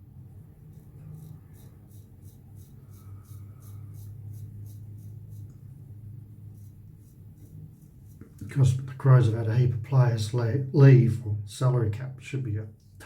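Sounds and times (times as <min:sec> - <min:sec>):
steady low hum: 0:00.0 - 0:13.0
razor scraping stubble: 0:00.6 - 0:08.9.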